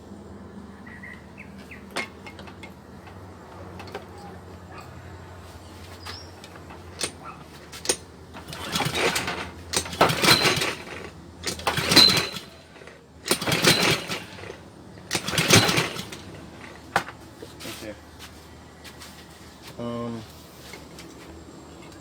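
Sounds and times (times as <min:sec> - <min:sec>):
small engine cranked by pull-starter: 0:05.8 - 0:17.2.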